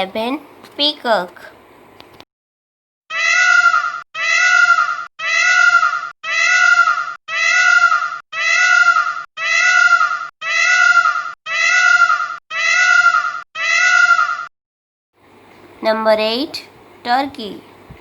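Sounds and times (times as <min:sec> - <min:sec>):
peacock calling: 0:03.1 - 0:14.5.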